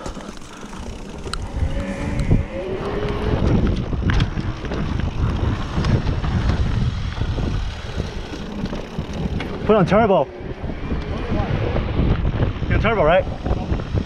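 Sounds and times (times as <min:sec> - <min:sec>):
bike rolling over dirt trail: 0:00.0 - 0:14.0
wind buffeting microphone: 0:00.0 - 0:14.0.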